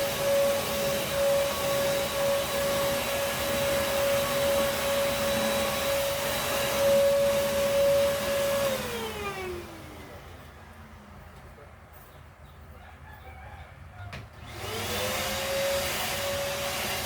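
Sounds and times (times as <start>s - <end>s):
vacuum motor spinning down: 0.0s - 10.4s, 14.4s - 17.0s
vacuum cleaner running: 0.0s - 10.9s, 14.4s - 17.0s.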